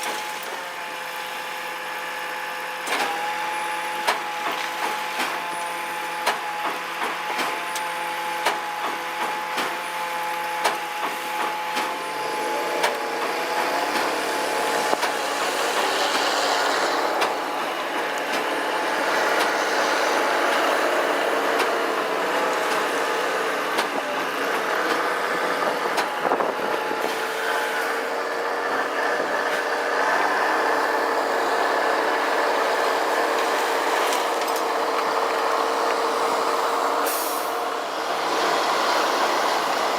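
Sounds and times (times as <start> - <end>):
heavy truck running: 0.0 - 39.9.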